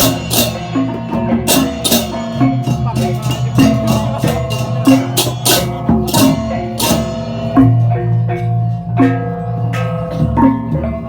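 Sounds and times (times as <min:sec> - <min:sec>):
cymbal-like clashes: 0:00.0 - 0:07.9.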